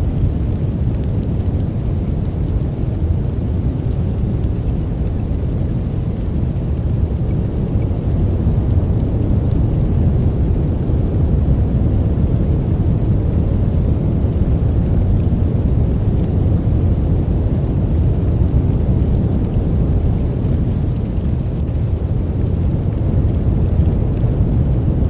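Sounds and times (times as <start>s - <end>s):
low rumbling white noise: 0.0s - 25.0s.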